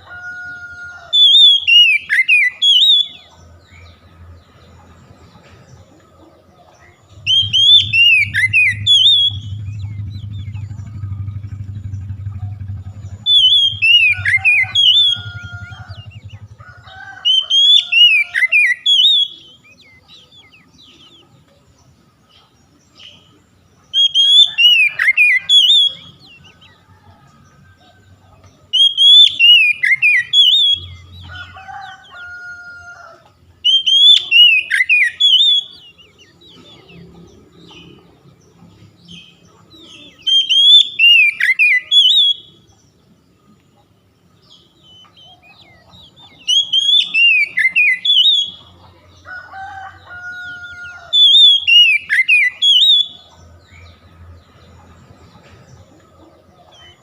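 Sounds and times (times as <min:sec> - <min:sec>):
bird whistled song: 0:01.0 - 0:03.9, 0:07.1 - 0:21.2, 0:23.9 - 0:26.8, 0:28.7 - 0:31.3, 0:33.6 - 0:37.0, 0:39.1 - 0:42.7, 0:44.8 - 0:48.8, 0:50.7 - 0:53.9
lower drawn-out bird call: 0:07.1 - 0:19.6, 0:23.9 - 0:26.3, 0:33.6 - 0:35.9, 0:40.1 - 0:42.6, 0:46.3 - 0:48.7.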